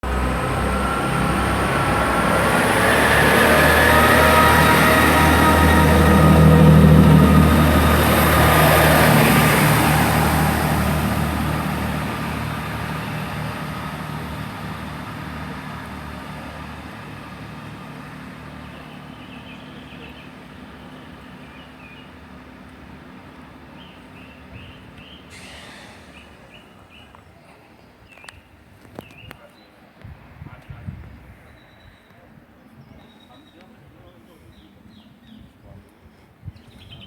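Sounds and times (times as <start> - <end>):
diesel train passing: 0.0 - 29.2.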